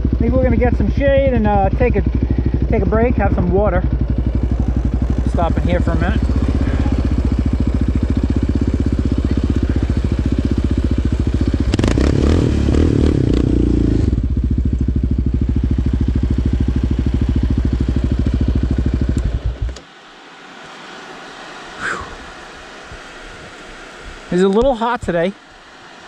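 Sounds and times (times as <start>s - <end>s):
quad bike engine idling: 0.0s - 19.9s.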